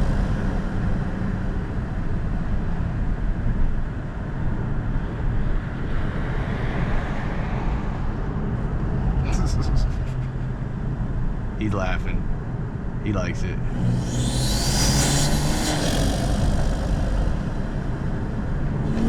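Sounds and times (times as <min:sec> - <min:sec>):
car engine running: 0:00.0 - 0:03.0, 0:13.5 - 0:19.0
road and wind noise: 0:00.0 - 0:19.0.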